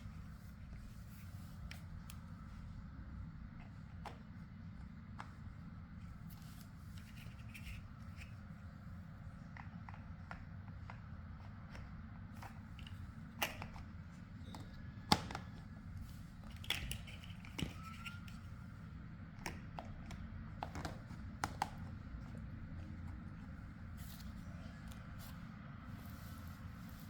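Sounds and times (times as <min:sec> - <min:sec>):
low steady hum: 0:00.0 - 0:27.0
plastic building blocks clicking: 0:16.5 - 0:18.4.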